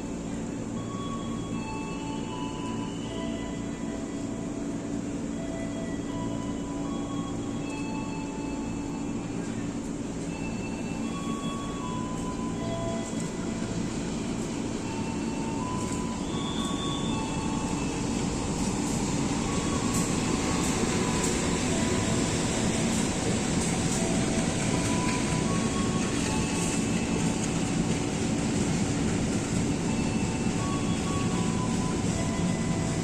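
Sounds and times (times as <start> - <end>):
train running with low hum: 0.0 - 33.0
wheels rumbling on rails: 7.5 - 33.0.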